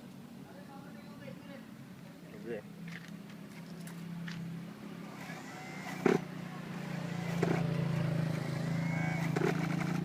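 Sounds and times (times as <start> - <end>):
rc car engine drone: 5.0 - 10.0.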